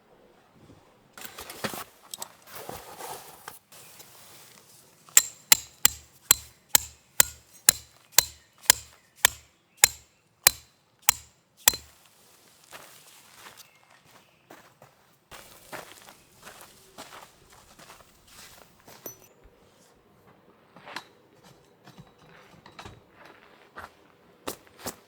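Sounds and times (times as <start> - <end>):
hammer blows ringing: 5.2 - 11.9.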